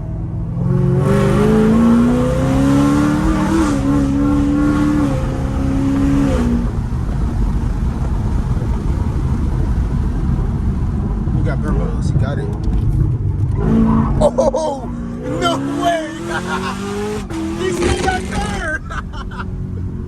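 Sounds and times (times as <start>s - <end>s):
car engine at full throttle: 0.0s - 20.0s
road and engine rumble: 0.0s - 20.0s.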